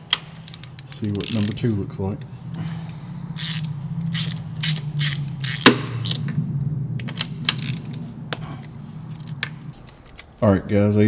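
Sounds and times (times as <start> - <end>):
steady low hum: 0.0 - 10.7
hand ratchet clicking: 0.1 - 1.8, 3.4 - 6.2, 7.5 - 7.9
metal tools clinking: 0.1 - 1.8.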